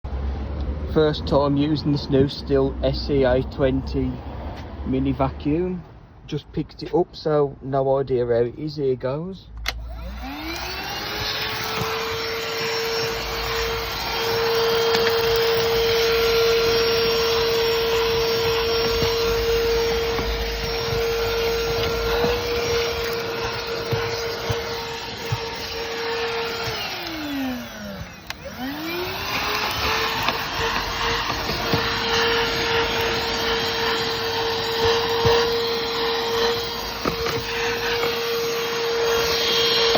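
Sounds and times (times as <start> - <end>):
handheld vacuum whining: 9.6 - 39.9.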